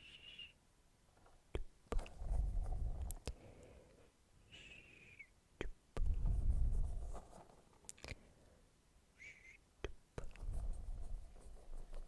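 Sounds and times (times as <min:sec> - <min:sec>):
mouth clicks: 0:01.5 - 0:02.0.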